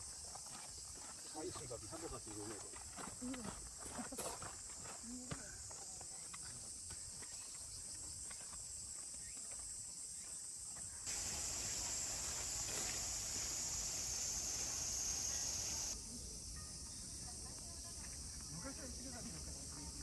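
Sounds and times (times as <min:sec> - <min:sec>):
insects buzzing: 0:04.6 - 0:20.0.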